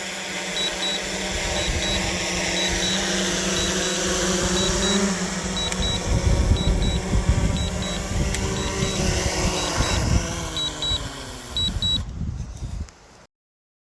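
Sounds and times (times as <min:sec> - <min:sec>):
drone propellers whining: 0:00.0 - 0:12.1
short high beeps: 0:00.6 - 0:01.0, 0:01.6 - 0:02.0, 0:02.6 - 0:03.8, 0:04.6 - 0:05.0, 0:05.6 - 0:06.0, 0:06.6 - 0:07.0, 0:07.6 - 0:08.0, 0:08.6 - 0:10.0, 0:10.6 - 0:12.0
wind buffeting microphone: 0:01.0 - 0:12.9.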